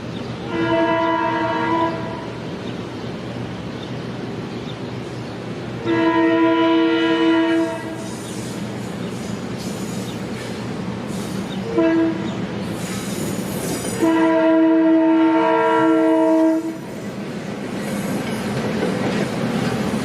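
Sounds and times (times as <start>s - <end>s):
train rumbling on rails: 0.0s - 20.0s
locomotive horn: 0.5s - 2.4s, 5.8s - 8.1s, 11.7s - 12.4s, 14.0s - 16.9s.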